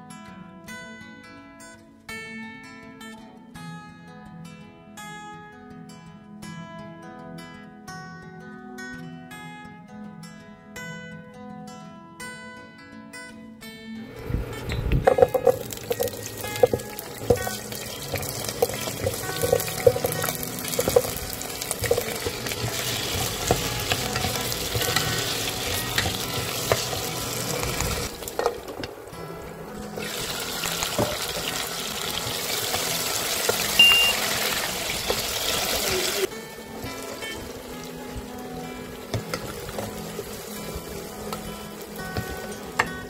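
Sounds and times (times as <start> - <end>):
soft acoustic guitar music: 0.0 - 43.0
spatula turning food in pot: 15.0 - 29.0, 29.8 - 35.8, 36.7 - 43.0
vegetables sizzling in hot oil: 15.1 - 43.0.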